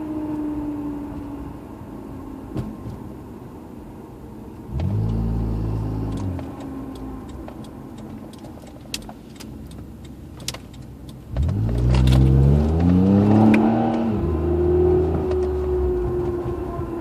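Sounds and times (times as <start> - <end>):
road and cabin noise: 0.0 - 17.0.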